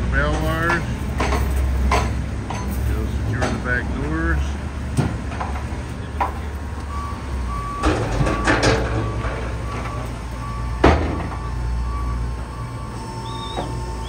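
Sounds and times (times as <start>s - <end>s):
industrial machinery humming: 0.0s - 14.0s
vehicle reversing beeper: 6.8s - 14.0s.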